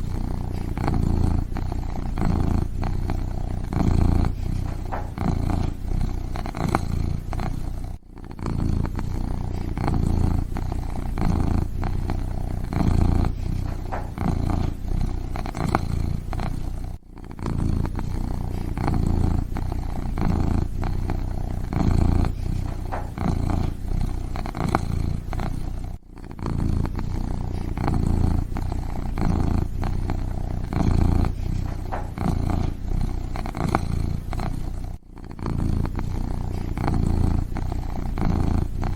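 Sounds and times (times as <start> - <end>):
kitten purring: 0.0 - 38.9.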